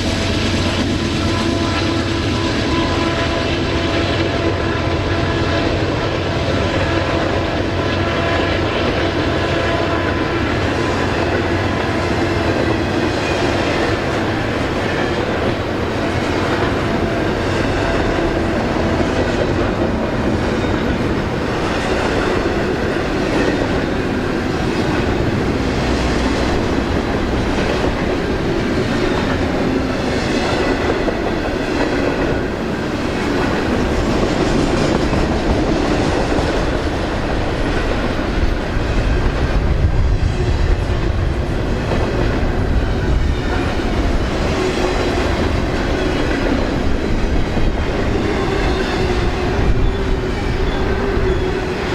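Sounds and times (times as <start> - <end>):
wheels rumbling on rail: 0.0 - 51.9.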